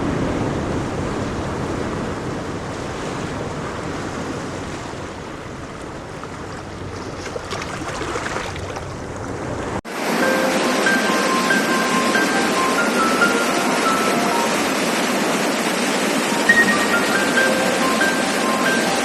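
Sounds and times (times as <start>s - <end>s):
fast-flowing river rushing: 10.0s - 19.0s.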